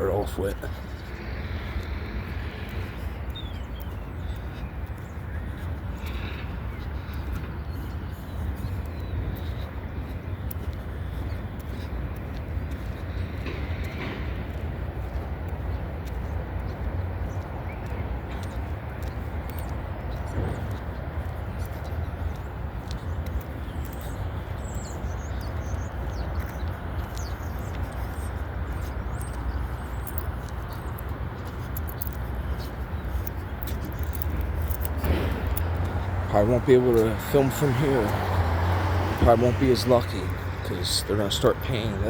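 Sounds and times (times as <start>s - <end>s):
wheels clicking on rail: 0.7s - 42.0s
freight train cars rumbling: 30.7s - 42.0s.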